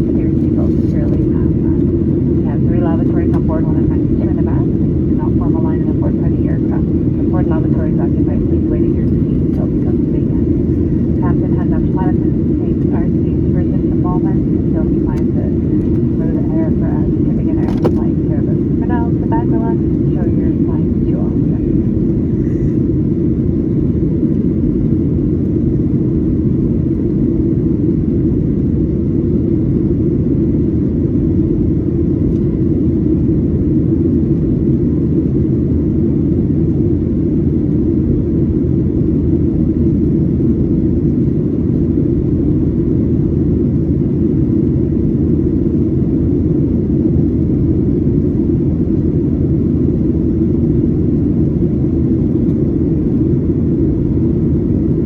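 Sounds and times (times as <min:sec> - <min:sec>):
airflow: 0:00.0 - 0:23.8
airplane cabin engine rumble: 0:00.0 - 0:55.0.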